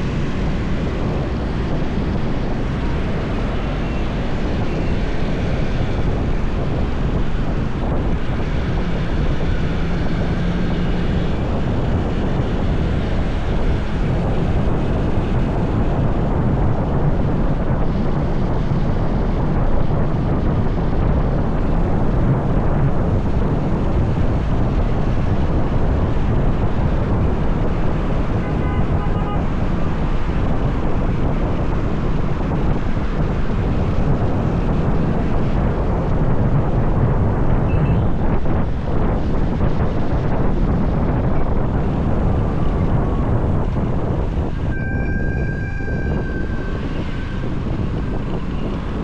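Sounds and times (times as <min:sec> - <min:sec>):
wind buffeting microphone: 0:00.0 - 0:49.0
high beeps: 0:44.7 - 0:47.3.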